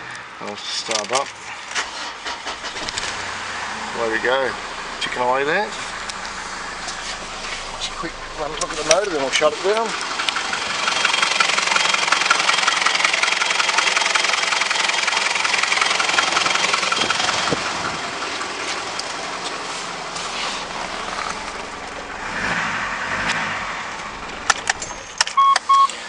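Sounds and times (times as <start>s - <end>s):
diesel engine idling: 1.4s - 26.0s.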